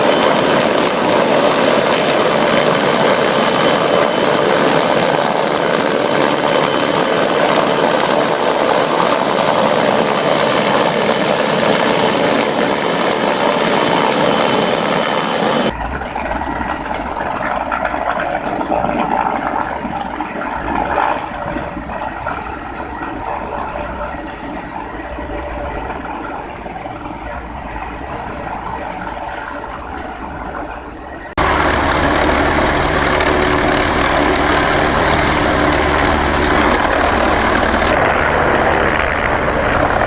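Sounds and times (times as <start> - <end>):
helicopter engine and rotor: 0.0 - 40.0
low engine rumble and hum: 20.8 - 40.0.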